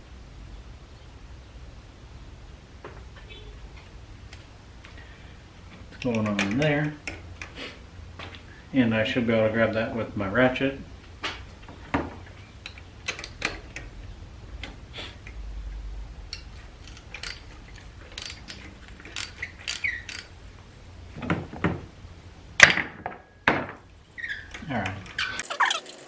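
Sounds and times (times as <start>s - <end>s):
metal tools clinking: 25.4s - 26.0s.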